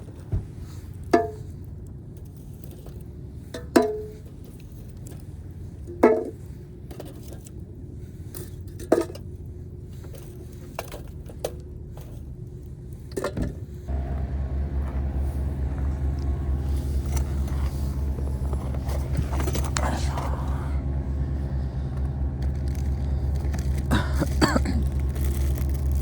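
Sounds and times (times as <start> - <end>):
steady engine hum: 13.7 - 26.0.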